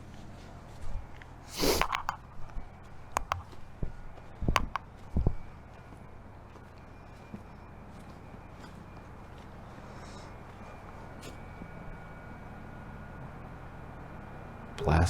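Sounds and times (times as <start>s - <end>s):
short hissing burst: 1.5s - 2.0s.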